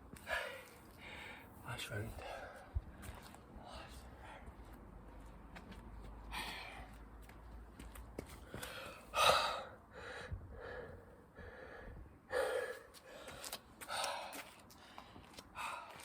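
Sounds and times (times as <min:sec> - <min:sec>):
man breathing hard and gasping: 0:08.5 - 0:16.0.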